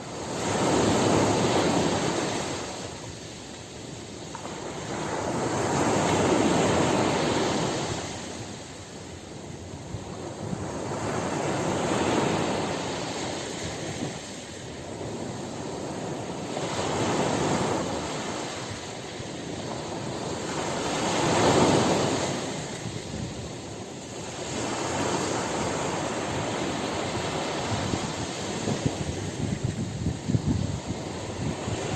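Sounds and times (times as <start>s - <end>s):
waves breaking on shore: 0.0s - 31.9s.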